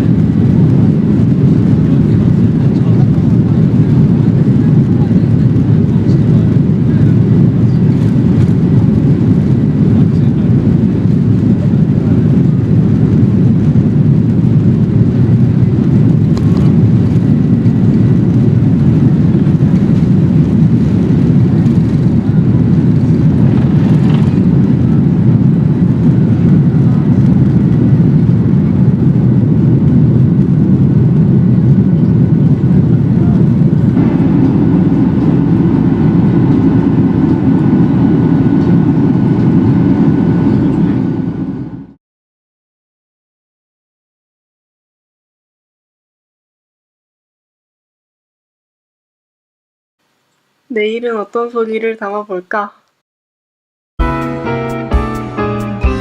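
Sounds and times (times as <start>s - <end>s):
jet engine cabin rumble: 0.0s - 42.0s.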